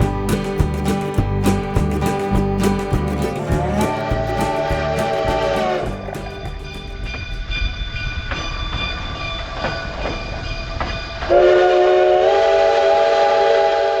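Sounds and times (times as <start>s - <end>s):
short thumps: 0.0s - 7.4s
quiet train sounds: 0.0s - 14.0s
steam locomotive whistle blast: 11.3s - 14.0s.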